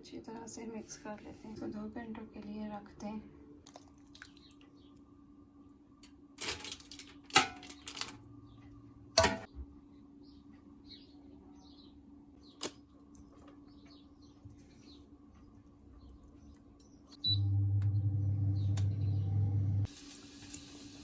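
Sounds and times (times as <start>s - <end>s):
kitchenware clattering: 6.4s - 8.1s, 9.2s - 9.5s
click: 18.8s - 19.0s.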